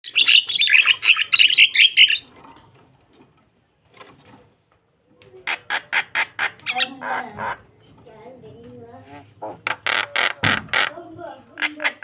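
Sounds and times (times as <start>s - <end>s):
starling chirping: 0.0s - 2.3s, 5.5s - 7.6s.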